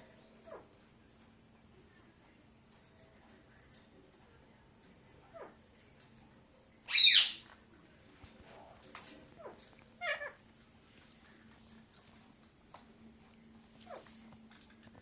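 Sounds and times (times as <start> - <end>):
parrot screeching: 6.9 - 7.4.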